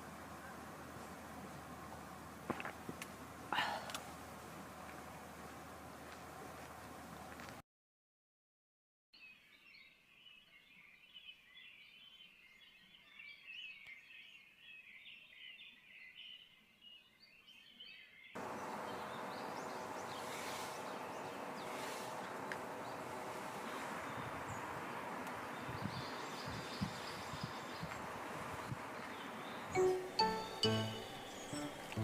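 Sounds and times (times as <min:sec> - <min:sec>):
small birds chirping: 0:09.2 - 0:32.0
steady hiss: 0:18.4 - 0:25.5
faint hum: 0:29.6 - 0:32.0.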